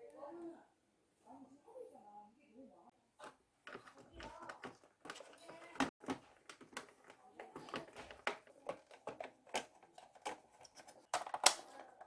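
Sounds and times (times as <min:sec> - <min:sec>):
plastic parts clicking: 0:03.2 - 0:12.0.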